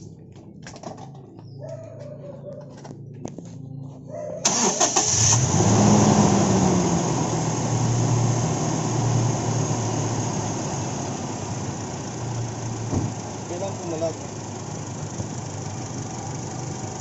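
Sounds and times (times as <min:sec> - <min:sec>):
car engine starting and idling: 0:04.4 - 0:17.0.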